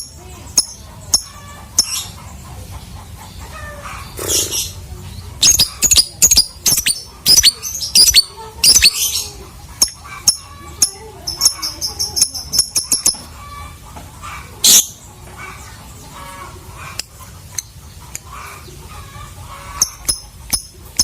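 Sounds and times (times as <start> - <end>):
bird shrill chirps: 5.4 - 9.3.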